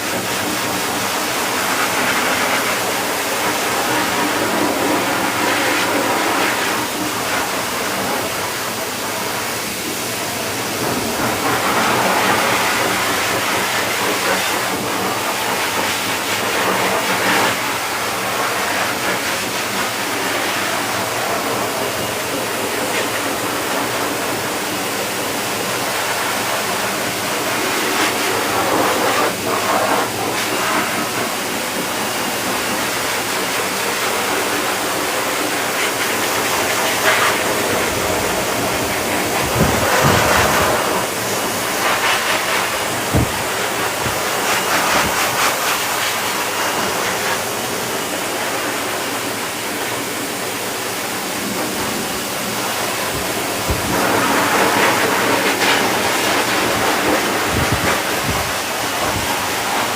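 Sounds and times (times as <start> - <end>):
grooming equipment rushing hiss: 25.4 - 59.9.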